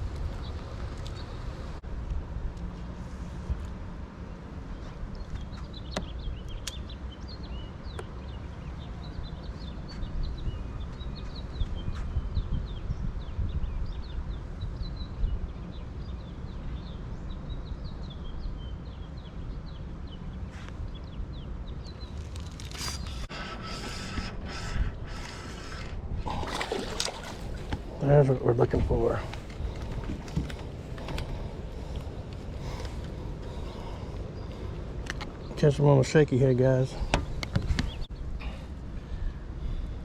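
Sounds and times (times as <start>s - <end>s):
small birds chirping: 4.2s - 40.0s
steady low rumble: 23.2s - 40.0s.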